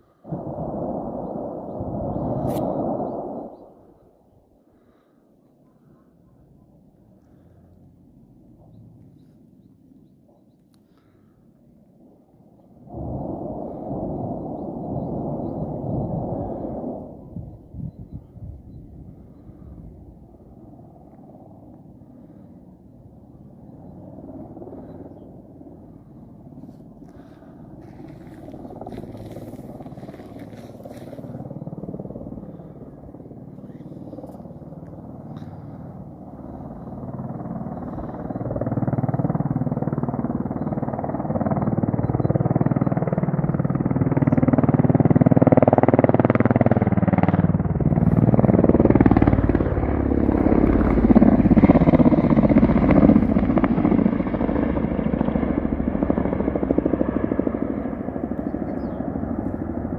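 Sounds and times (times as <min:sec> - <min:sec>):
helicopter engine and rotor drone: 0:17.3 - 0:59.9.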